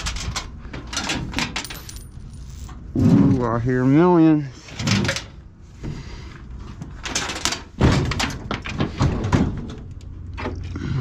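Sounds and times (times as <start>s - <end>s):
coins rattling inside a machine: 1.5s - 2.7s
sheet-metal thunks: 7.6s - 9.8s.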